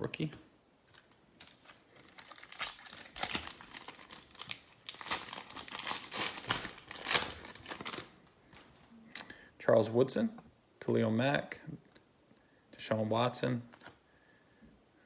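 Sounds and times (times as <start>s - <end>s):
plastic wrapper crinkling: 0.8s - 8.8s.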